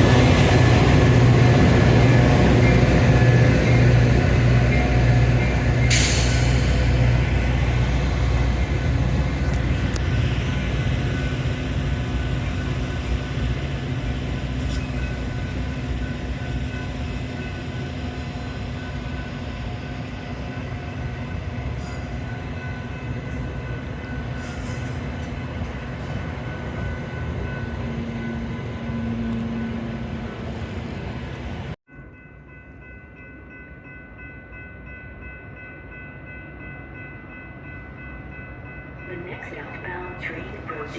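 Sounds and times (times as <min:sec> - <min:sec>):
train rumbling on rails: 0:00.0 - 0:40.9.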